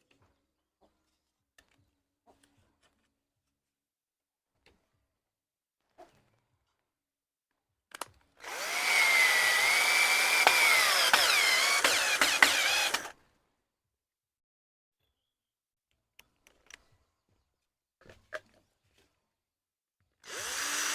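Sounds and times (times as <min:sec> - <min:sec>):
sharp clicks: 0:08.0 - 0:13.1
power drill running: 0:08.4 - 0:13.1, 0:20.2 - 0:20.9.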